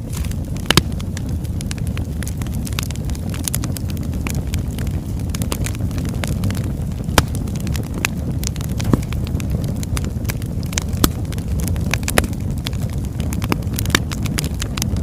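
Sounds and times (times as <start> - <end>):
fire rumbling: 0.0 - 15.0
logs popping and snapping: 0.0 - 15.0.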